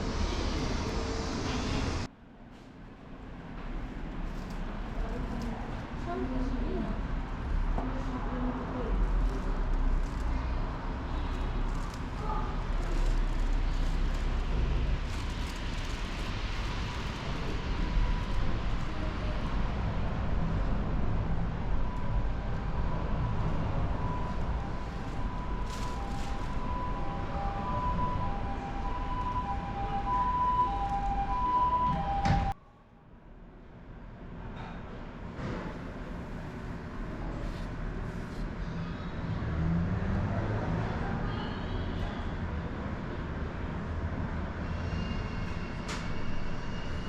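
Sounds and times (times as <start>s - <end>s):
vehicle rumble in motion: 0.0s - 32.6s.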